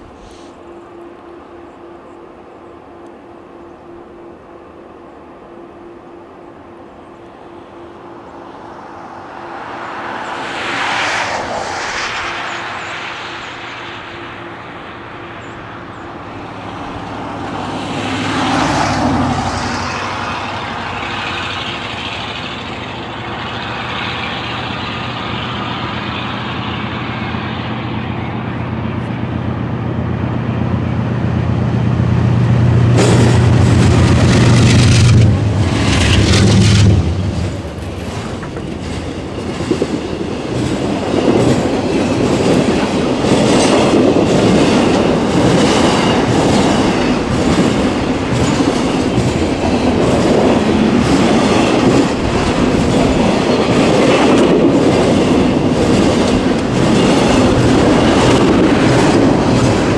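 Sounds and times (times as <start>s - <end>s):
locomotive engine drone: 0.0s - 59.9s
freight cars rumbling: 7.1s - 59.9s
wheels clicking over rails: 18.7s - 26.6s, 33.0s - 59.9s.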